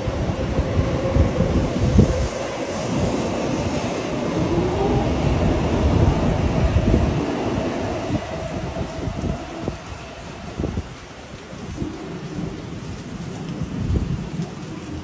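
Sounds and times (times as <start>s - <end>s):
train rushing past: 0.0s - 11.2s.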